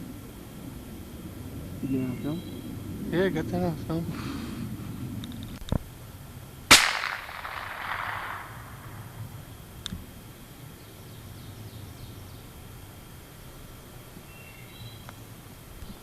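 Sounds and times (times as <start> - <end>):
rifle shot echoing: 6.7 - 9.3.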